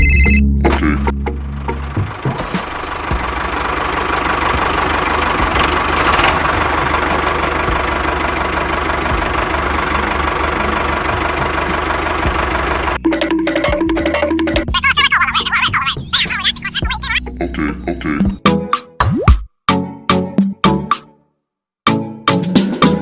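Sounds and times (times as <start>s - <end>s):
music: 0.0s - 2.4s, 9.1s - 23.0s
small engine rattling: 1.7s - 14.5s.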